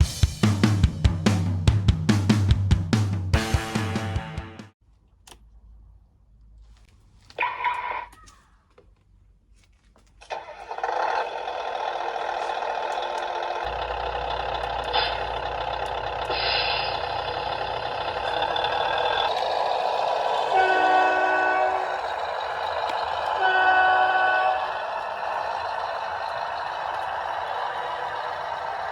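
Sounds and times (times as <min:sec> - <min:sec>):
simulated truck engine running: 0:10.2 - 0:28.9
air brake hisses: 0:14.8 - 0:17.8
horn blasts: 0:20.3 - 0:25.2.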